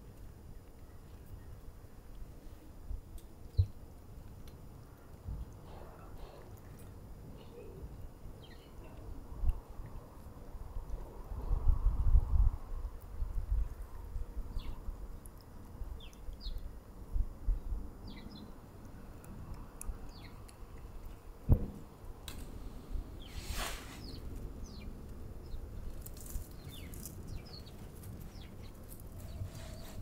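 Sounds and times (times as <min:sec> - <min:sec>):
low wind rumble: 0:00.0 - 0:30.0
small birds chirping: 0:03.5 - 0:03.8, 0:04.8 - 0:10.2, 0:13.5 - 0:16.8, 0:17.5 - 0:21.4, 0:23.0 - 0:30.0
knock: 0:21.5 - 0:21.8
brief rushing burst: 0:23.2 - 0:24.2.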